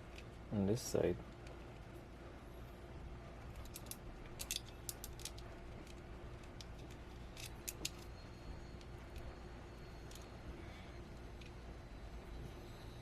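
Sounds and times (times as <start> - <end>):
metal hardware clicking: 3.6 - 8.1.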